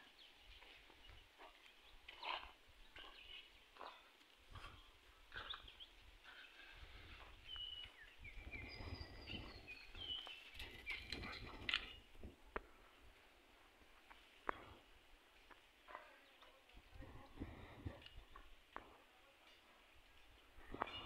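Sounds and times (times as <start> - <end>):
faint birds chirping and whistling: 0.0 - 12.3, 19.6 - 21.0
wind rumble on microphone: 6.8 - 12.5, 16.8 - 18.5.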